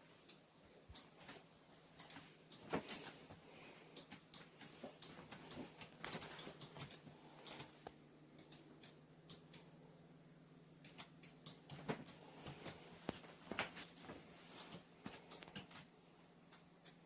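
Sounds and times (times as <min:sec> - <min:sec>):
faint steady hum: 0:00.0 - 0:17.0
light clicks and taps: 0:00.2 - 0:09.8, 0:10.8 - 0:15.9.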